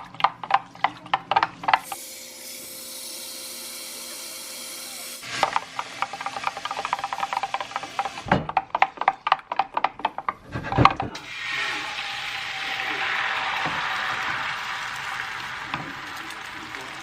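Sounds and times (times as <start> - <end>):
steady sizzling hiss: 11.2 - 17.0.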